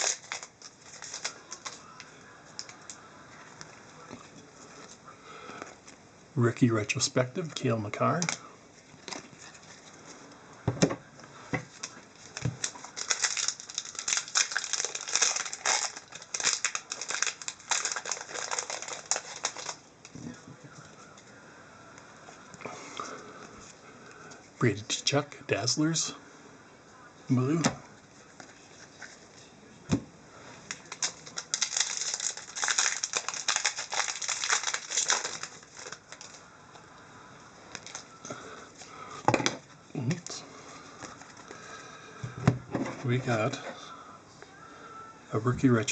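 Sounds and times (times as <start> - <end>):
packaging crinkling and rustling: 0.0 - 3.0, 7.2 - 10.2, 11.6 - 20.4, 30.6 - 36.5, 37.7 - 41.8.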